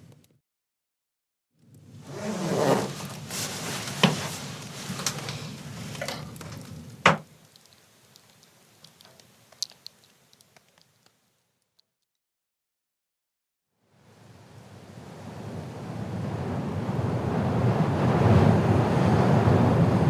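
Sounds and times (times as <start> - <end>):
rustling and handling noises: 2.1 - 11.1
faint ticks: 6.3 - 11.9
sharp knocks: 7.0 - 7.3.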